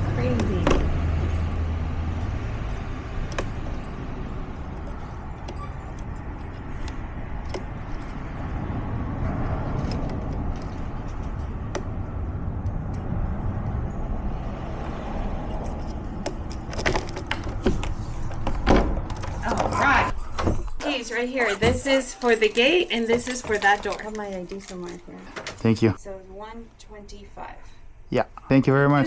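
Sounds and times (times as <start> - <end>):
door lock clicking: 0.0 - 14.2, 15.4 - 22.4
low vehicle rumble: 0.0 - 25.3.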